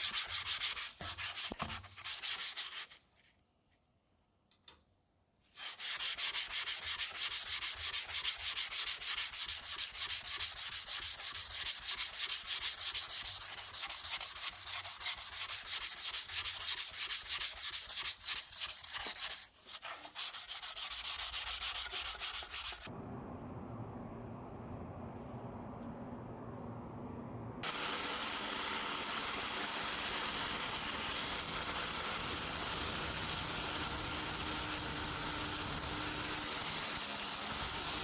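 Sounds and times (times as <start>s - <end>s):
sanding strokes on knife: 0.0s - 3.0s, 5.5s - 22.9s.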